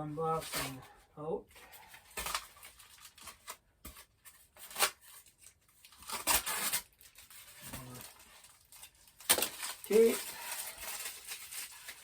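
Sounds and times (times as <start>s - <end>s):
packing tape ripping off box: 2.0s - 12.0s.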